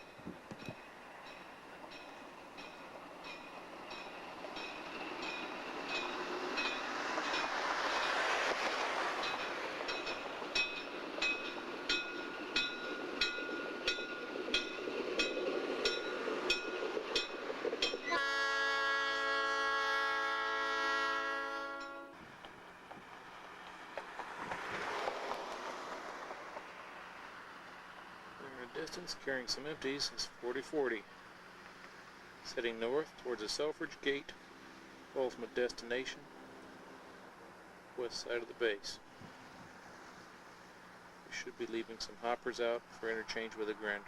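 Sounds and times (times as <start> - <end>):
train wheels clicking over rail joints: 0.0 - 18.1, 21.8 - 27.0
locomotive horn: 18.0 - 22.2.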